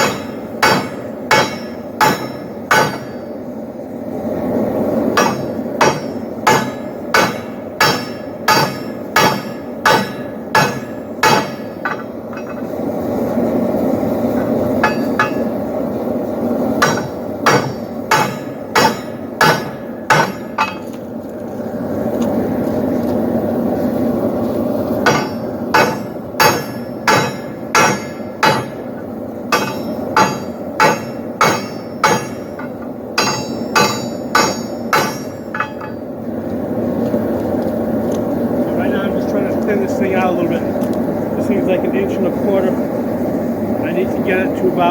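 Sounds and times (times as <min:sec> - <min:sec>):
hammer striking steel on anvil: 0:00.0 - 0:03.3, 0:05.1 - 0:12.7, 0:14.4 - 0:15.6, 0:16.8 - 0:21.0, 0:25.0 - 0:36.1
steady rushing noise: 0:00.0 - 0:44.9.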